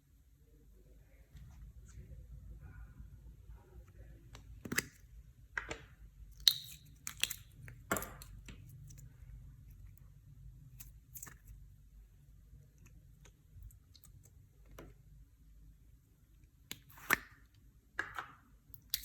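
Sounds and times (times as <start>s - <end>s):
slime clicking and crackling: 6.3s - 9.0s, 18.7s - 19.0s.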